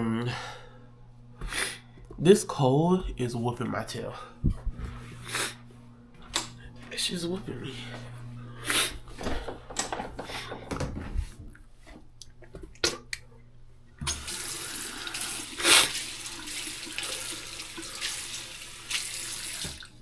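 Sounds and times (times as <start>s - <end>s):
tap water running into sink: 14.0s - 20.0s.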